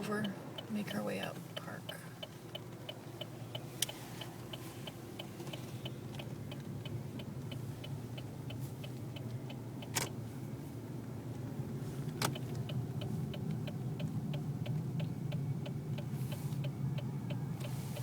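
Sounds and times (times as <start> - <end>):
car turn signal clicking: 0.0 - 10.3, 11.3 - 18.0
car cabin hum: 0.0 - 18.0.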